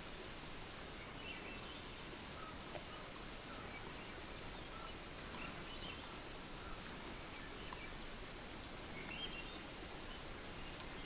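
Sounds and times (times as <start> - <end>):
steady hiss: 0.0 - 11.0
faint click: 7.6 - 7.9, 10.7 - 11.0.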